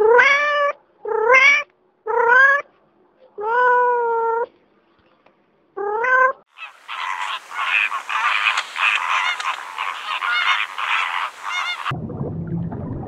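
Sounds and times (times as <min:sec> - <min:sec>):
geese honking: 0:06.5 - 0:11.9.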